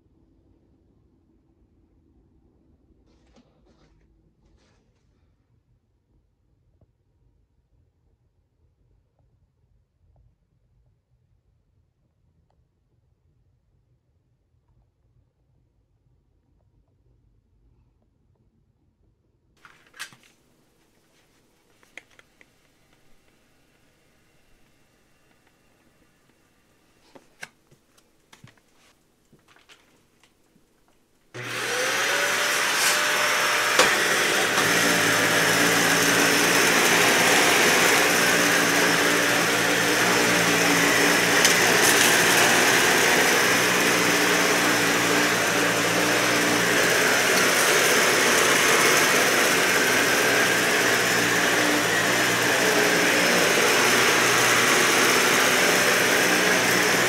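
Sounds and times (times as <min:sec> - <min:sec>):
vacuum cleaner motor running: 0:31.4 - 0:57.0.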